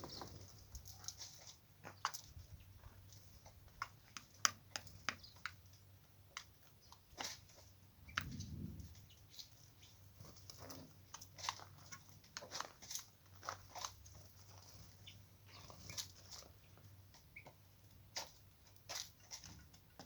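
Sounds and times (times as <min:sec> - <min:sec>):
light clicks taps and crunches: 0:03.0 - 0:08.3, 0:10.6 - 0:14.7.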